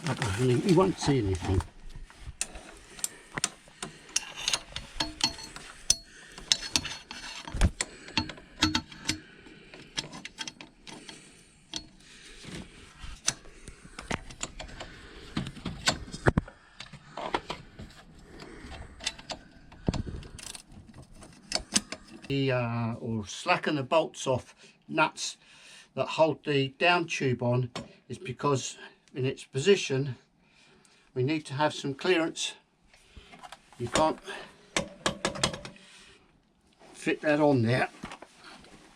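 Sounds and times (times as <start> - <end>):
socket ratchet clicking: 4.1 - 9.2.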